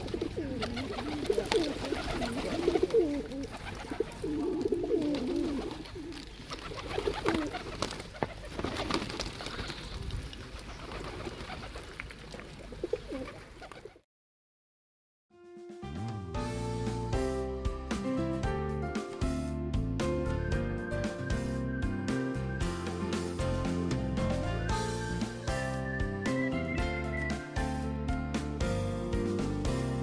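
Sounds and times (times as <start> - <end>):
pigeons cooing: 0.0 - 11.8, 12.4 - 14.0.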